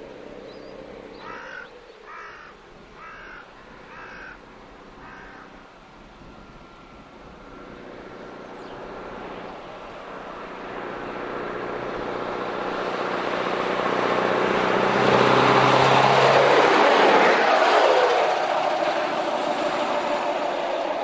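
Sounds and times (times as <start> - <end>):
truck engine passing: 0.0 - 1.9, 6.6 - 21.0.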